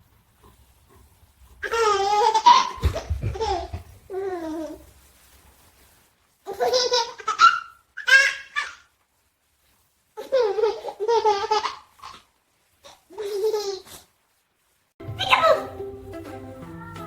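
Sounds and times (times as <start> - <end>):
baby giggling: 1.6 - 4.8.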